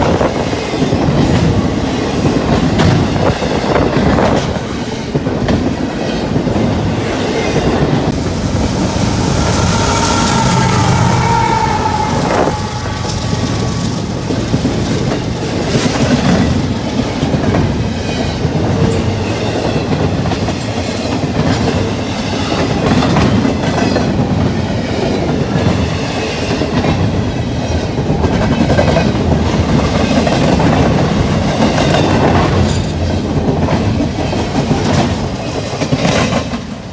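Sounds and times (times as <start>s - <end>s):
freight train rumbling past: 0.0s - 36.9s
wind: 0.0s - 36.9s
rain: 8.1s - 16.3s.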